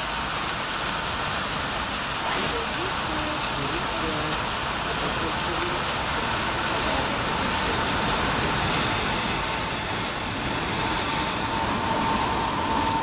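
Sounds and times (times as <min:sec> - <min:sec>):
train rolling in: 0:00.0 - 0:13.0
high-pitched wheel squeal: 0:07.8 - 0:13.0.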